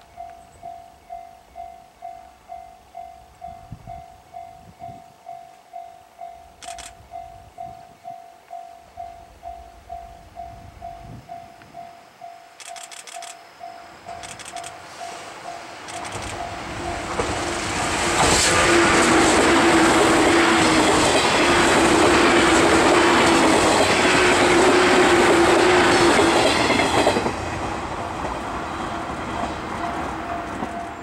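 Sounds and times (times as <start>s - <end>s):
steady train hum: 0.0s - 31.0s
train wheels clattering over rails: 15.9s - 31.0s.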